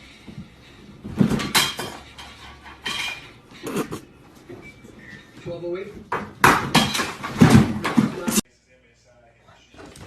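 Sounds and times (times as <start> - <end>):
clattering knocks of hard objects: 0.3 - 3.5, 6.0 - 8.4.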